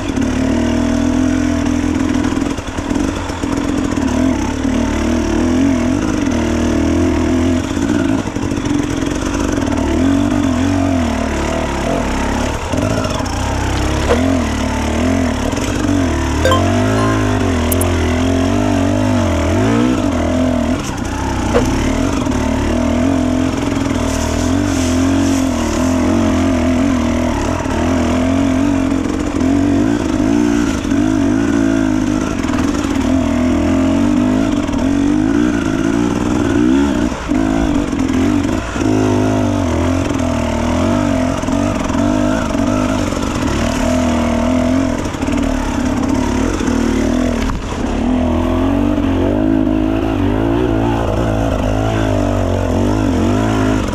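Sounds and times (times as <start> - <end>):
off-road motorcycle engine revving: 37.9 - 53.9.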